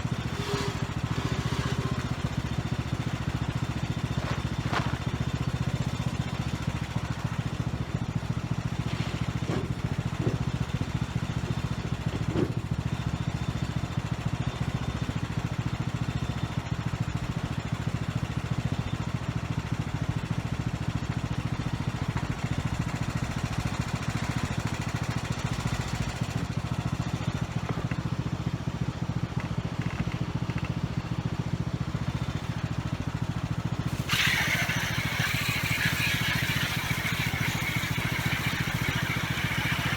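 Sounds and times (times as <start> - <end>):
riding lawn mower engine idling: 0.0 - 39.9.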